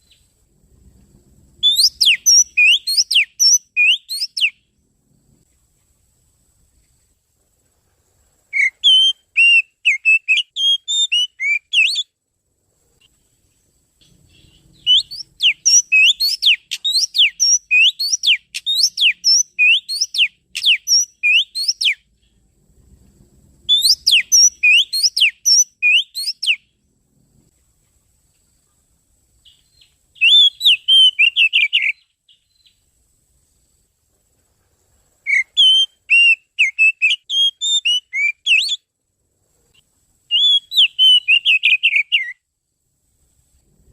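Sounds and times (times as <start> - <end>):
bird song whistled notes: 0.0 - 0.3, 1.6 - 4.8, 8.5 - 12.2, 13.5 - 22.4, 23.6 - 26.8, 29.4 - 32.9, 35.2 - 38.9, 40.3 - 42.5.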